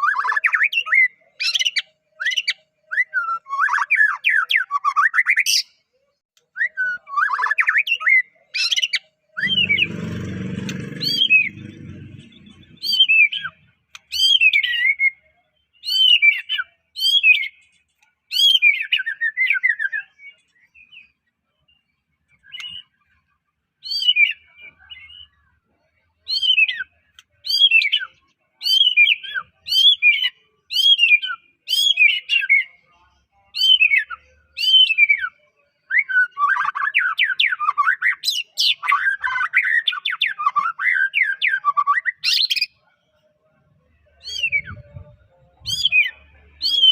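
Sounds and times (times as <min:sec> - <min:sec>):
bird whistling song: 0:00.0 - 0:05.7, 0:12.5 - 0:17.6, 0:22.4 - 0:23.0, 0:33.6 - 0:42.7, 0:44.2 - 0:46.9
low rumbling noise: 0:09.4 - 0:13.0.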